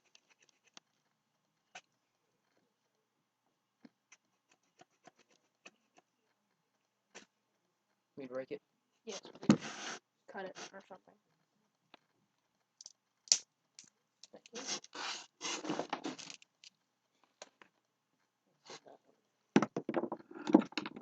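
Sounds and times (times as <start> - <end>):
sticks knocking and scraping: 12.8 - 16.5, 19.6 - 21.0.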